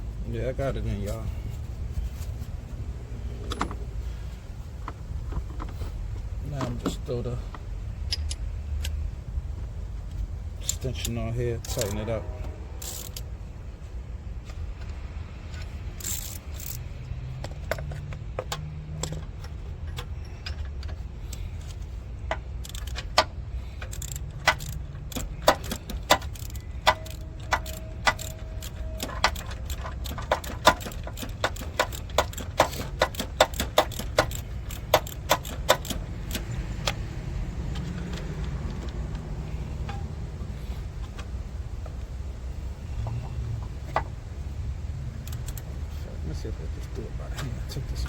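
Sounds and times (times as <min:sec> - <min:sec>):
socket ratchet clicking: 0:12.8 - 0:13.3, 0:15.6 - 0:41.4, 0:45.2 - 0:45.7.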